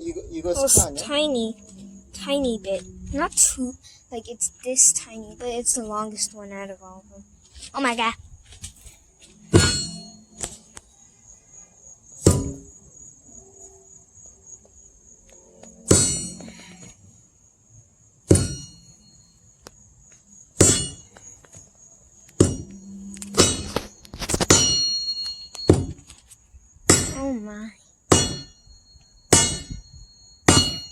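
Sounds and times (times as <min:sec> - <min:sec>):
sledgehammer clanging on steel wedge: 0:09.5 - 0:10.6, 0:12.3 - 0:12.7, 0:15.9 - 0:16.8, 0:18.3 - 0:19.0, 0:20.6 - 0:21.2, 0:22.4 - 0:26.1, 0:26.9 - 0:27.4, 0:28.1 - 0:28.6, 0:29.3 - 0:30.9.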